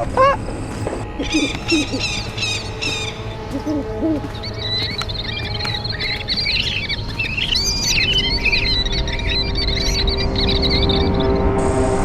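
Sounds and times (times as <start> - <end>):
high bird chirps and trills: 0.0 - 11.6
low arched bird notes: 0.0 - 12.0
steady low rumble: 0.0 - 12.0.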